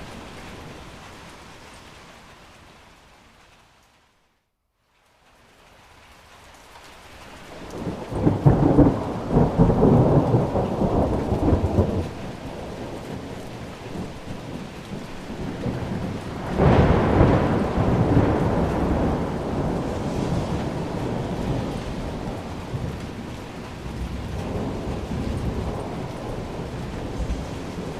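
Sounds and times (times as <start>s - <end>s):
steady rain: 0.0s - 27.9s
thunder rolling: 7.6s - 27.9s.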